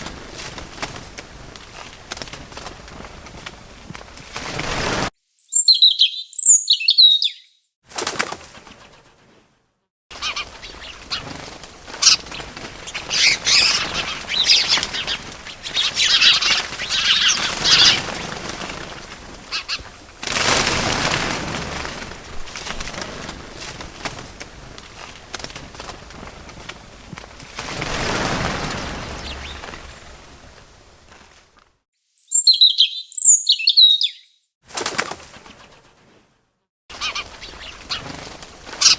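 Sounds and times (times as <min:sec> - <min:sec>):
flapping wings: 0:00.0 - 0:05.1, 0:07.9 - 0:31.8, 0:34.7 - 0:38.9
birds chirping: 0:05.2 - 0:07.7, 0:10.1 - 0:20.0, 0:27.7 - 0:31.0, 0:32.0 - 0:34.4, 0:36.9 - 0:38.9.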